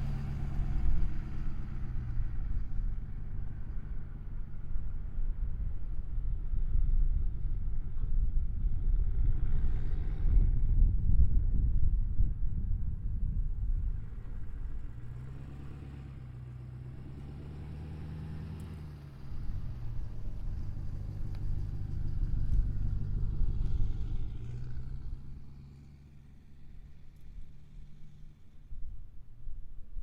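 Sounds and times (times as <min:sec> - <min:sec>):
diesel engine running: 0:13.5 - 0:28.6.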